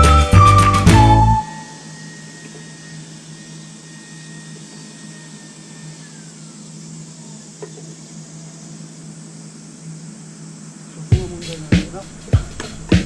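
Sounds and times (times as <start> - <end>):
background music: 0.0 - 1.8
low mechanical hum with hiss: 1.5 - 13.0.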